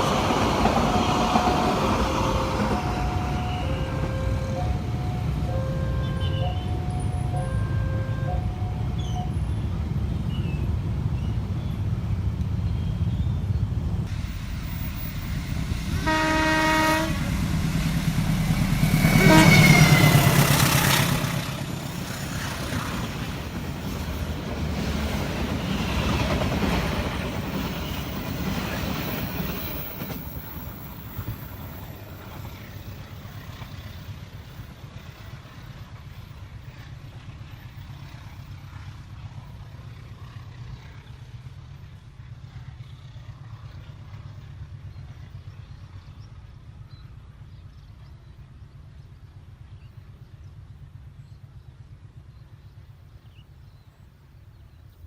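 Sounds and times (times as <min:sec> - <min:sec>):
train passing at speed: 0:00.0 - 0:55.0
train horn blast: 0:00.8 - 0:09.3, 0:15.8 - 0:17.6, 0:18.6 - 0:20.6.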